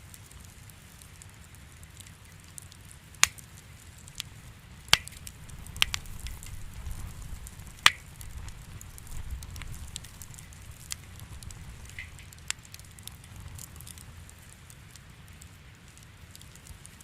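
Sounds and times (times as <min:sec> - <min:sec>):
loud pops of burning wood: 0:00.0 - 0:17.0
wood fire crackling: 0:00.0 - 0:17.0.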